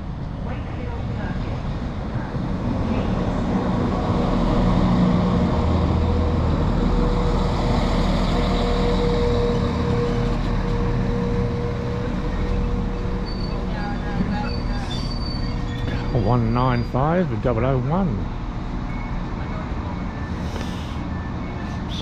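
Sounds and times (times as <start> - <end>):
diesel train engine drone: 0.0 - 22.0.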